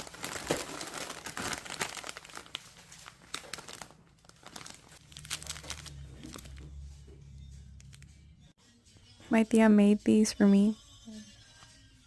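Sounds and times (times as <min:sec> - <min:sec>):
plastic snack packaging crackling: 0:00.0 - 0:06.6.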